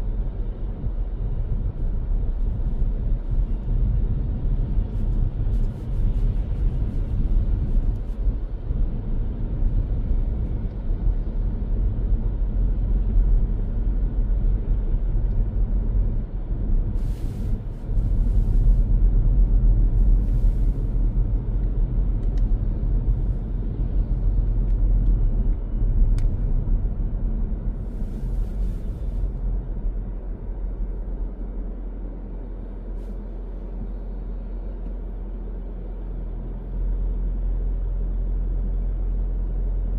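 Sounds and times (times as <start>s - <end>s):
car road and engine rumble: 0.0s - 39.9s
click: 26.2s - 26.4s.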